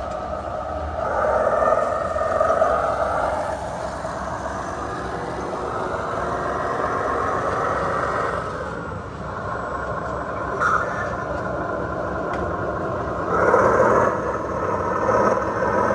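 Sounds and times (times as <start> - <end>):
toy truck motor whine: 0.0 - 15.9.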